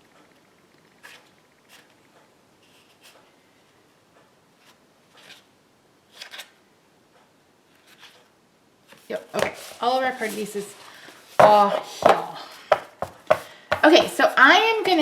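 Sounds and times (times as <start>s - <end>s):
paper rustling: 8.9s - 15.0s.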